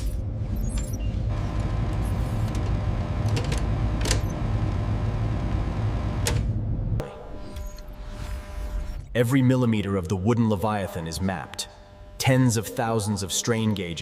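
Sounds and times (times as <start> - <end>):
low machine rumble: 0.0 - 7.2
faint hum: 0.0 - 9.1.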